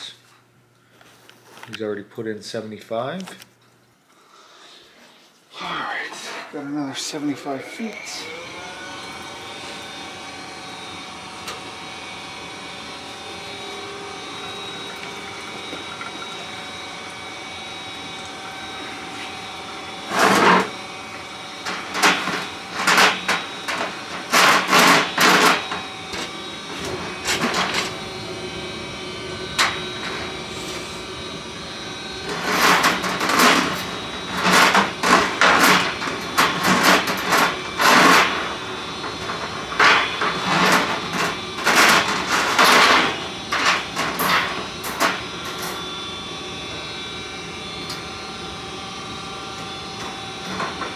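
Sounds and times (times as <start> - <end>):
drain cleaning machine motor hum: 5.5 - 50.9
cable clattering: 18.2 - 46.0, 49.6 - 50.9.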